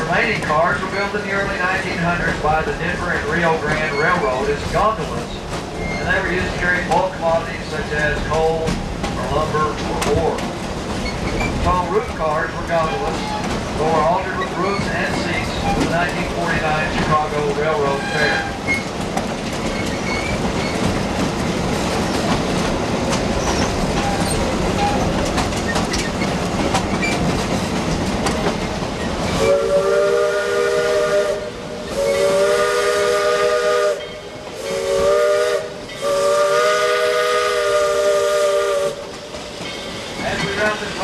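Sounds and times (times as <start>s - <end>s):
train rolling with clatter: 0.0s - 41.0s
steam locomotive whistle blasts: 29.4s - 39.0s.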